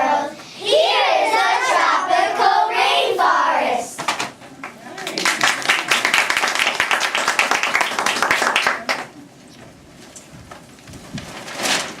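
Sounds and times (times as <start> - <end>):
audience applauding: 4.6 - 9.1.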